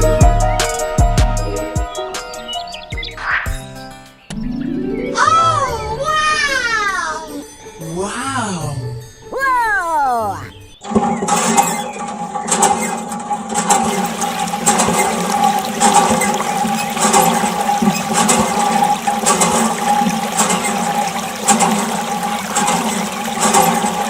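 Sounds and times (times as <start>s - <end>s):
water gushing from hand pump: 10.8s - 24.0s.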